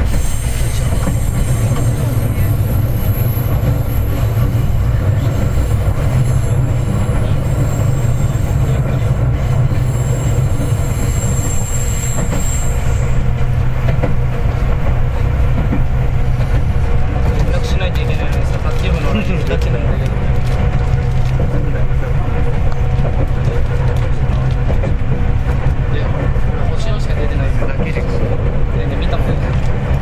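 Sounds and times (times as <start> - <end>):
high wheel squeal: 0.0 - 16.4
train wheels rumbling on rails: 0.0 - 30.0.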